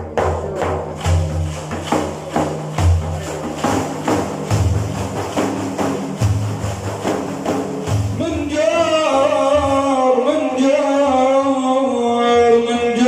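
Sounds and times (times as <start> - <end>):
frame drums with jingles: 0.0 - 11.1
praise chant: 8.0 - 13.0.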